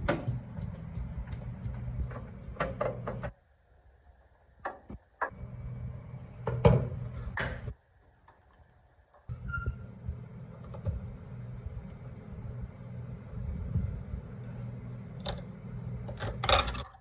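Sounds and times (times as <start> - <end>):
steady low hum: 0.0 - 3.3, 9.3 - 16.8.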